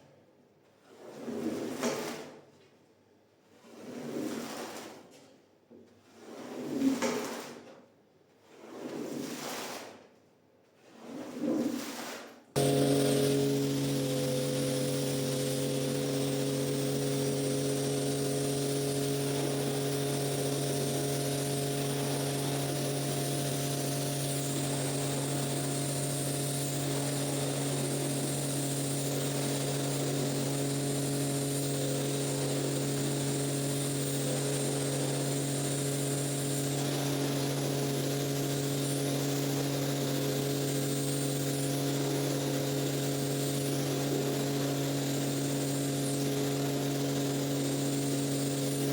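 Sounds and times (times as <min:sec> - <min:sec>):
electric motor hum: 0:12.6 - 0:48.9.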